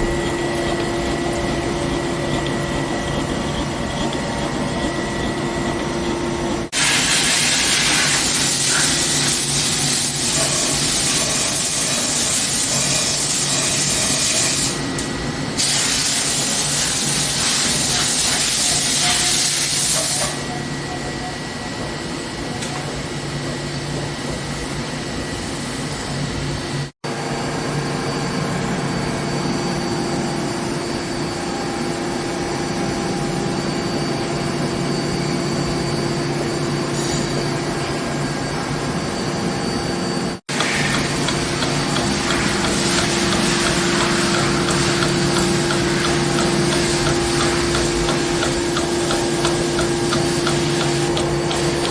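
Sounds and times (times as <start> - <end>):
machine tool humming: 0.0 - 14.8, 39.2 - 51.9.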